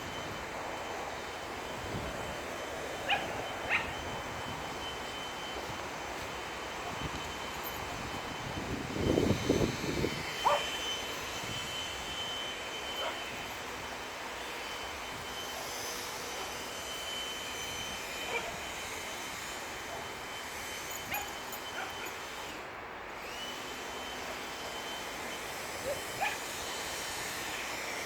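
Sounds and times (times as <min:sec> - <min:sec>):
leaf blower running: 0:00.0 - 0:28.0
puppy yipping and barking: 0:03.0 - 0:04.0, 0:10.4 - 0:10.7, 0:13.0 - 0:13.2, 0:25.8 - 0:26.4.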